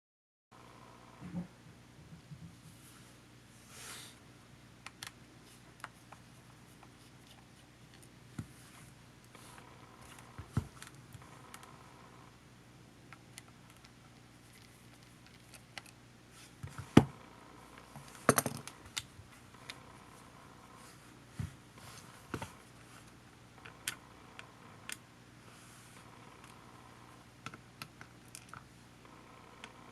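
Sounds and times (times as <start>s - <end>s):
faint steady hum: 0.6s - 29.9s.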